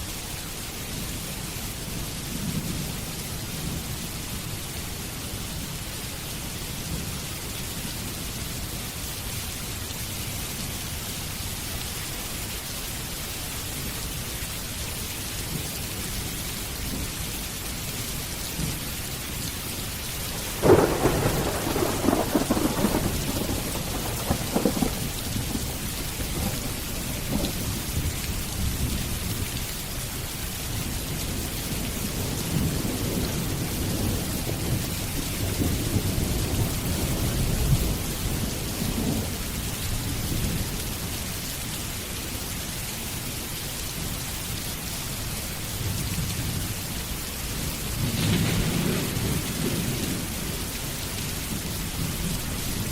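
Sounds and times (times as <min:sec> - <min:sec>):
steady rain: 0:00.0 - 0:52.9
thunder rumbling: 0:20.2 - 0:29.0, 0:48.0 - 0:50.6.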